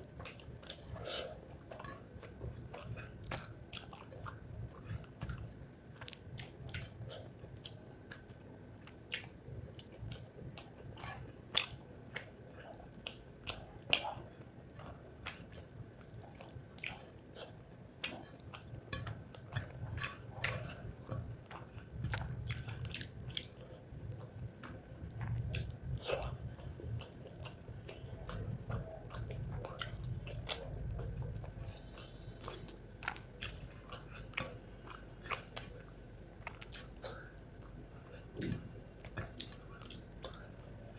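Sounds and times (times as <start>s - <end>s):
close chewing and biting: 0.1s - 40.9s.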